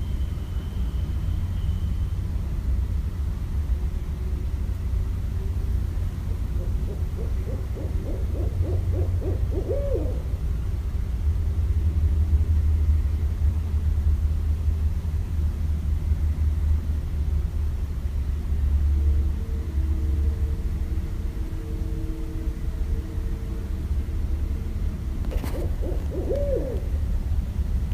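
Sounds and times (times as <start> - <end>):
owl hooting: 6.5 - 10.4, 25.3 - 27.1.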